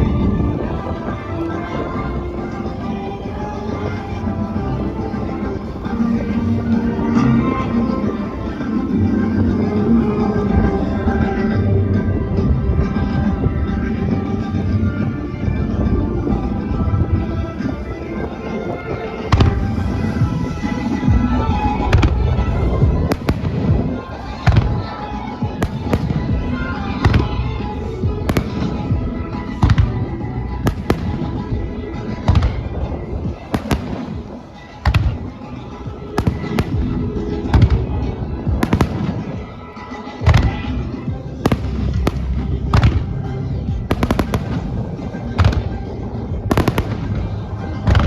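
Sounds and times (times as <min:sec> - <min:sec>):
loud music over speakers: 0:00.0 - 0:48.0
fireworks bangs: 0:19.2 - 0:35.4, 0:36.1 - 0:40.6, 0:41.4 - 0:45.8, 0:46.4 - 0:48.0.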